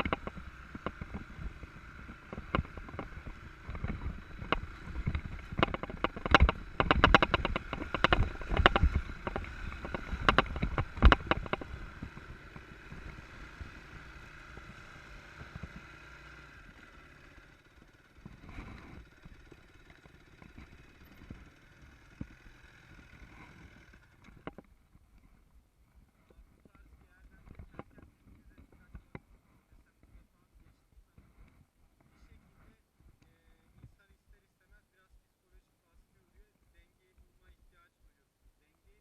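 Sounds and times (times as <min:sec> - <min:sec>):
rapid clatter of knocks and rattles: 0:00.0 - 0:13.7, 0:17.7 - 0:25.4
dirt bike engine running: 0:00.0 - 0:39.0.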